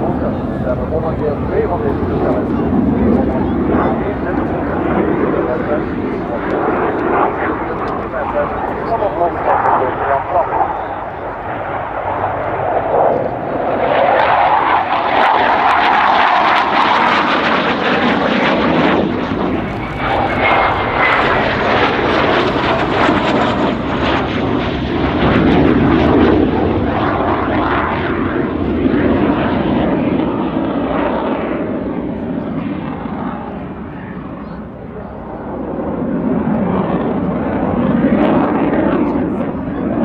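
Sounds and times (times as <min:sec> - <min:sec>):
jet aircraft flying past: 0:00.0 - 0:28.3.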